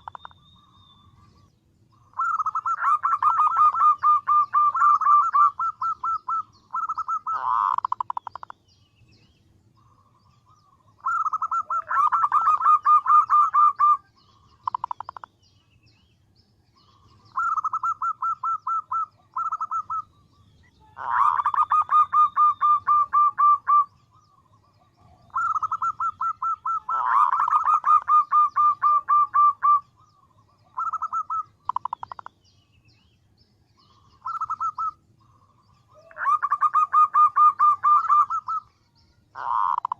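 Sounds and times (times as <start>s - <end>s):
dove calling in rapid short notes: 2.0s - 8.5s, 10.7s - 15.3s, 17.0s - 20.1s, 20.8s - 24.0s, 25.2s - 30.0s, 30.6s - 32.3s, 33.9s - 38.7s, 39.4s - 39.9s.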